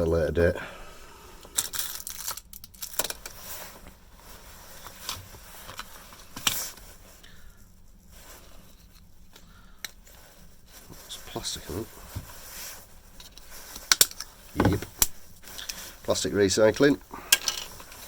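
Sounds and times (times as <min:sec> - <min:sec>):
small parts clicking and tapping: 0:01.5 - 0:03.3, 0:17.3 - 0:18.0
knock: 0:14.6 - 0:14.9.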